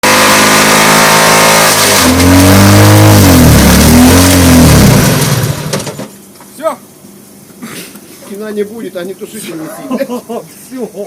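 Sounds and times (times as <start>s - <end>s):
car engine at high revs: 0.0s - 6.0s.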